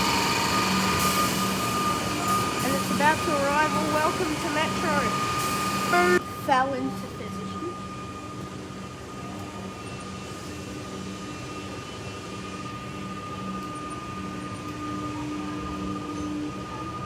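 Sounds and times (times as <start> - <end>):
electrical hum with held tones: 0.0 - 8.4
train motor whine: 0.0 - 17.0.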